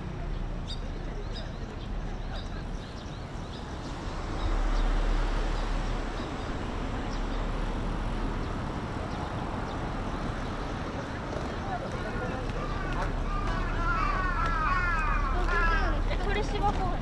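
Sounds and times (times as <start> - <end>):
road traffic: 0.0 - 17.0
vehicle passing: 3.6 - 17.0.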